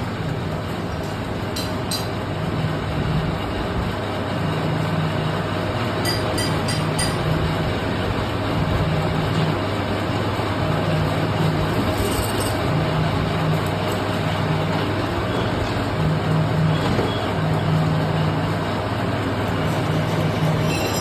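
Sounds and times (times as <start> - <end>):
lathe machine running: 17.6 - 21.0.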